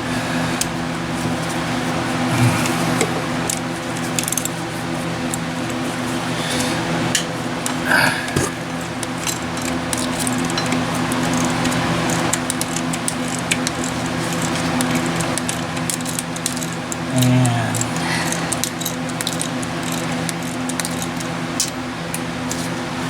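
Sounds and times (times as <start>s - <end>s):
steady hum: 15.8s - 20.8s.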